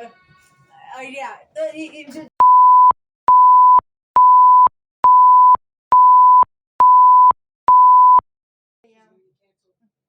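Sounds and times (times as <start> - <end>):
censor bleep tone: 2.4 - 8.2.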